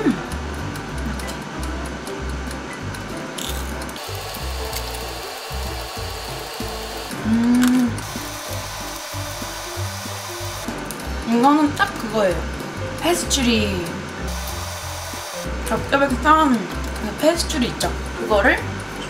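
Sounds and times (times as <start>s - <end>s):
person humming mmm: 0.0s - 0.4s, 7.1s - 8.1s
background music with bass line: 0.0s - 19.0s
crunching and chewing rusk: 3.4s - 4.0s.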